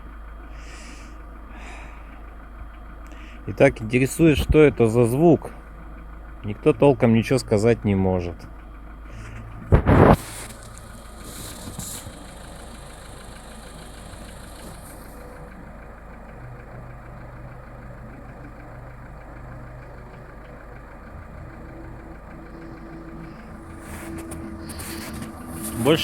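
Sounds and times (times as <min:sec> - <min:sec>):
car engine idling: 0:00.0 - 0:26.0
fast even engine knocking: 0:02.1 - 0:26.0.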